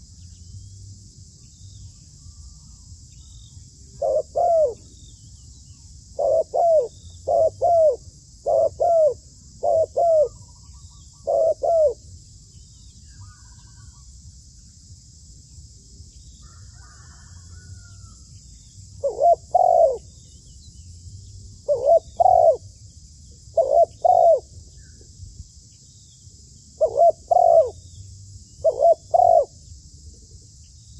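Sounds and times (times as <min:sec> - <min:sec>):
high insect drone: 0:00.0 - 0:30.9
dove cooing: 0:03.9 - 0:05.0, 0:06.2 - 0:10.5, 0:11.1 - 0:12.0, 0:19.0 - 0:20.1, 0:21.6 - 0:22.7, 0:23.5 - 0:24.5, 0:26.8 - 0:27.8, 0:28.6 - 0:29.6.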